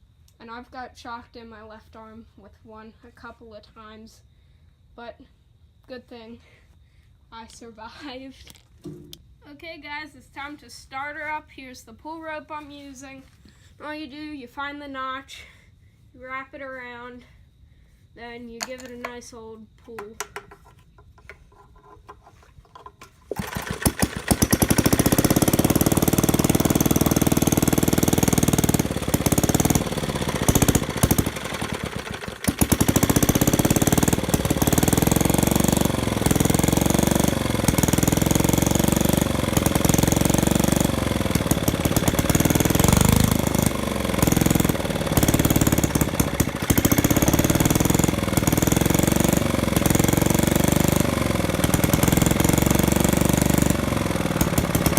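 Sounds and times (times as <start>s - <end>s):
gasoline engine rope-started: 22.4s - 54.9s.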